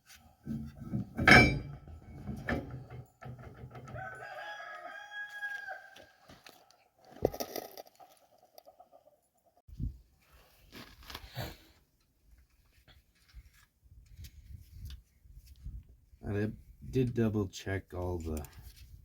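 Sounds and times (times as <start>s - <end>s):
rooster crowing: 3.8s - 6.2s.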